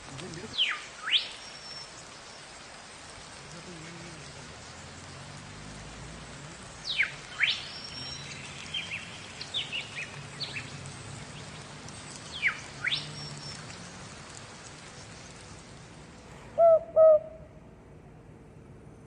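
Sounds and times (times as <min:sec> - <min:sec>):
steady hiss: 0:00.0 - 0:18.8
loud sweeping bird calls: 0:00.5 - 0:02.6, 0:06.7 - 0:13.8, 0:16.2 - 0:17.5.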